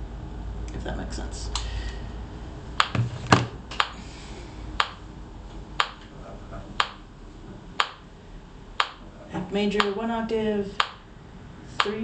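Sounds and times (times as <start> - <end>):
metronome clicking: 4.8 - 5.0, 5.8 - 6.0, 6.8 - 7.0, 7.8 - 8.0, 8.8 - 9.0, 10.8 - 11.0.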